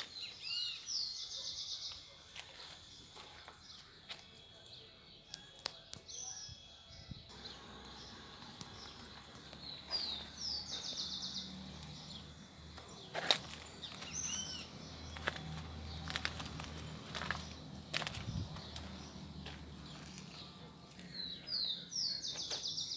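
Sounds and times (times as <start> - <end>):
small birds chirping: 0.0 - 22.9
sharp clicks: 7.8 - 9.6.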